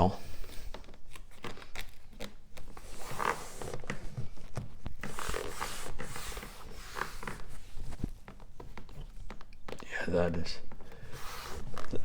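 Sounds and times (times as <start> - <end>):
hands rubbing leather: 2.2 - 9.5, 10.8 - 12.0.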